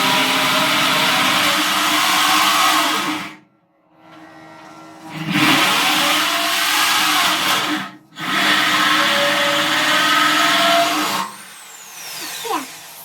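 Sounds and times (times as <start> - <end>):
drill hole saw against steel: 0.0 - 3.4, 5.2 - 13.0.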